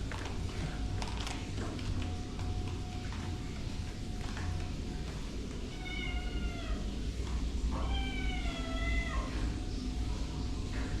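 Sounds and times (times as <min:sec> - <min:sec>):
cat meowing: 0:05.7 - 0:06.9, 0:07.7 - 0:09.3.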